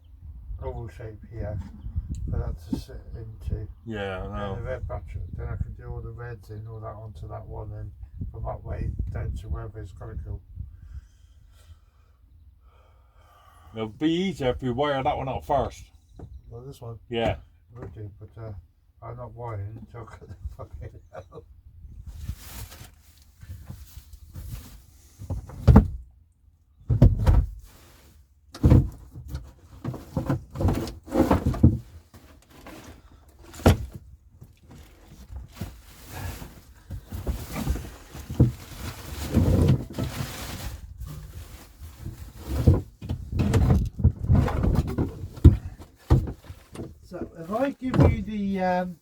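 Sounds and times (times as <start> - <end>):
gear knocking and scraping: 42.3 - 48.2.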